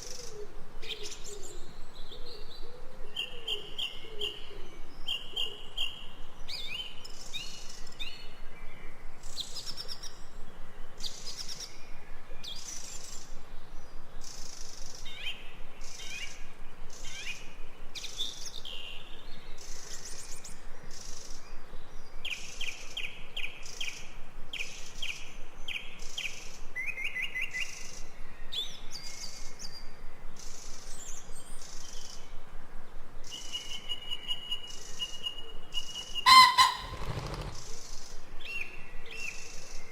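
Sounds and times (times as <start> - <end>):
steady background hiss: 0.0 - 39.9
birds chirping and trilling: 35.8 - 37.7
bird rapid rising notes: 36.3 - 37.6.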